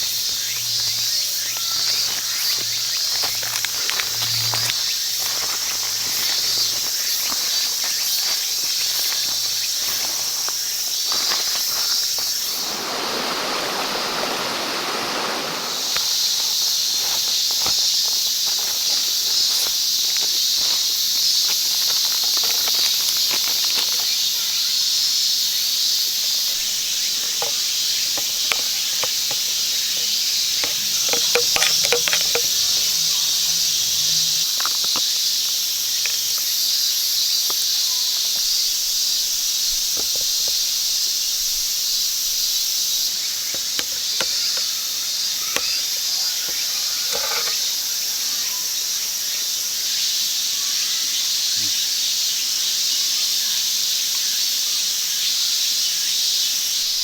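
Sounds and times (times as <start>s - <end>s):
insects chirring: 0.0s - 57.0s
light clicks and crackles: 15.9s - 24.6s.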